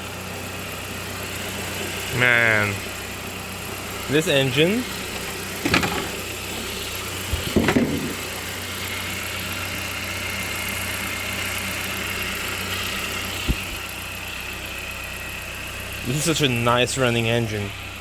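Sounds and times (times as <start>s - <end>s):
car engine idling: 0.0s - 18.0s
short knocks and bumps: 5.6s - 8.3s, 13.4s - 13.8s.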